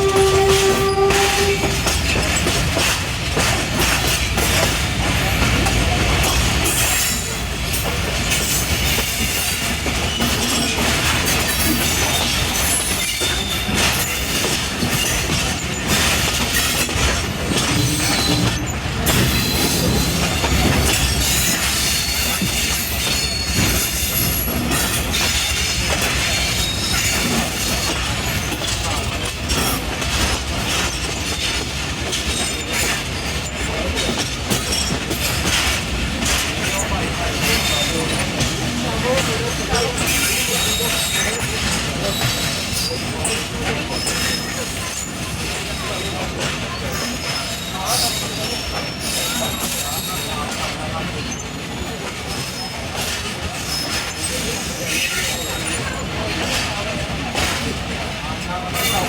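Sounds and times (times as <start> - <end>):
high wheel squeals: 0.0 - 2.4, 8.4 - 29.0
train rumble: 0.0 - 59.0
wheels clacking over rail joints: 0.0 - 59.0.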